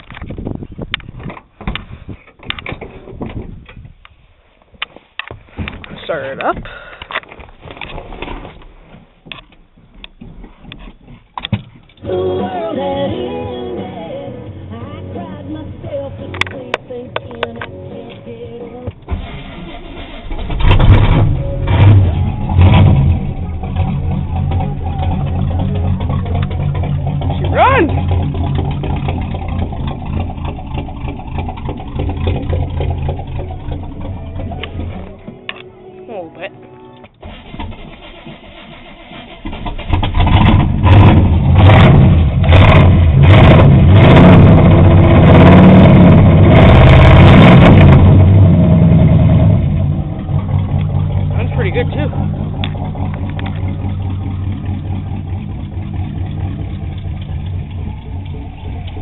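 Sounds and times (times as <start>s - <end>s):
loud engine idling: 19.1s - 35.4s, 47.8s - 59.0s.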